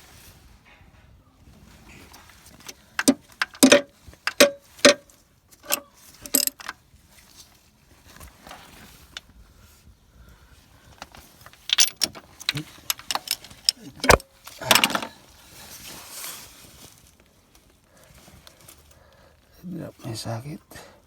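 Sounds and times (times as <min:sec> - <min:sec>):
hand tools clinking on metal: 0:02.7 - 0:05.0, 0:05.6 - 0:06.7, 0:11.0 - 0:15.1.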